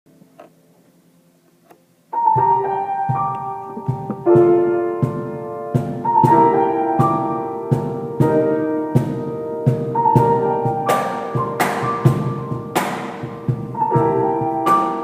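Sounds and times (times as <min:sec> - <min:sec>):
piano chords: 0:01.9 - 0:15.0
sharp drum hits: 0:03.1 - 0:15.0
steady drum beat: 0:03.1 - 0:15.0.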